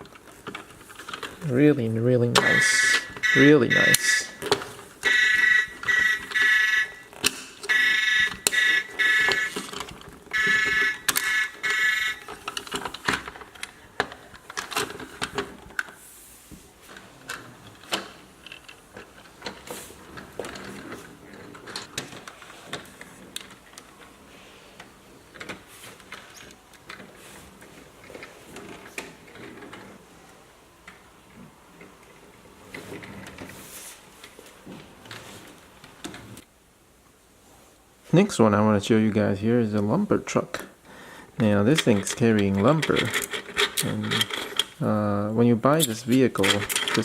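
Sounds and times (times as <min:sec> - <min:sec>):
plastic toy parts clicking: 0:02.4 - 0:15.9, 0:41.7 - 0:44.8, 0:45.8 - 0:47.0
toy electronic beeping tones: 0:02.6 - 0:04.4, 0:05.0 - 0:07.1, 0:07.7 - 0:09.6, 0:10.3 - 0:12.3.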